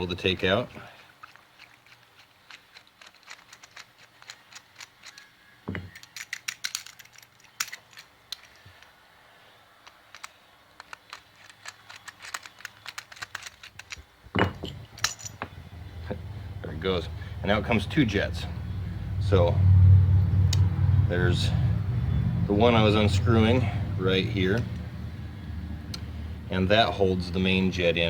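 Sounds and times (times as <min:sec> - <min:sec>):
screwdriver metallic clicks and scrapes: 0:01.2 - 0:09.0, 0:09.8 - 0:14.1.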